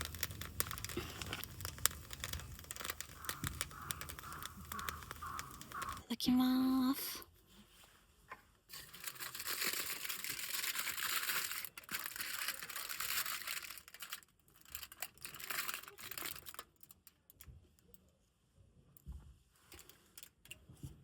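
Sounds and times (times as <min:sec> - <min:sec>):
wrapping crinkling and rustling: 0:00.0 - 0:06.0, 0:08.7 - 0:17.5.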